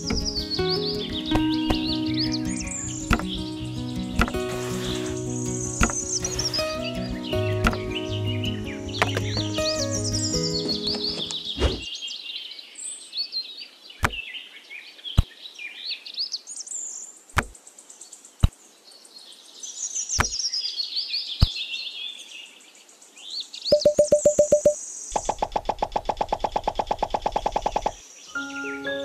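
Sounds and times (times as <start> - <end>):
repeating plucked musical note: 0.0 - 11.5, 23.8 - 24.8
birds chirping and twittering: 0.0 - 29.0
stones clicking on a hard board: 1.3 - 2.0, 3.1 - 3.4, 4.2 - 4.6, 5.8 - 6.4, 9.0 - 9.4.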